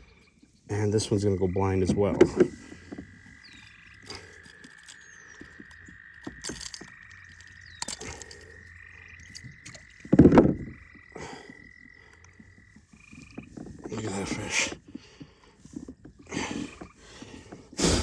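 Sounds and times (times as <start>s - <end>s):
frogs trilling: 0.0s - 18.0s
small clicks and knocks: 1.9s - 10.8s.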